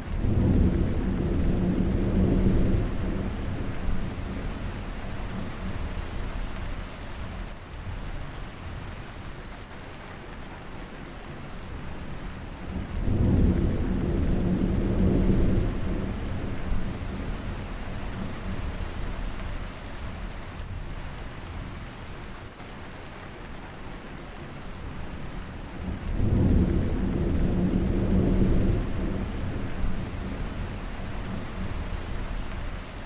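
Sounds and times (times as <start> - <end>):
steady rain: 0.0 - 33.0
rolling thunder: 25.9 - 32.7.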